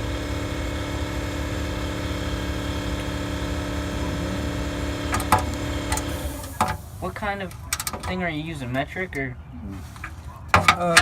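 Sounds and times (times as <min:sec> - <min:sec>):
engine idling: 0:00.0 - 0:08.0.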